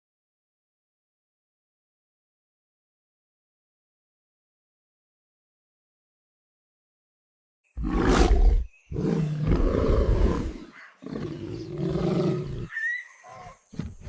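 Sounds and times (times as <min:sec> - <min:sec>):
harsh roar-like animal calls: 0:07.8 - 0:13.7.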